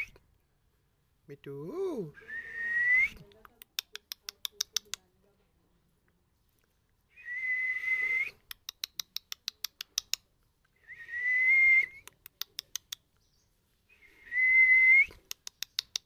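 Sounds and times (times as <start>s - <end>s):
parrot sharp clicks: 3.3s - 5.1s, 8.4s - 10.3s, 11.9s - 13.1s, 15.1s - 16.0s.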